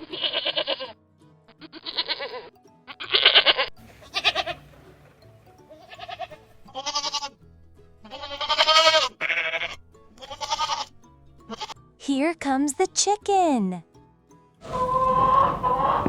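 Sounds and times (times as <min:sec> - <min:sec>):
goats bleating: 0:00.0 - 0:04.8, 0:05.7 - 0:07.4, 0:08.0 - 0:11.8, 0:14.6 - 0:16.0.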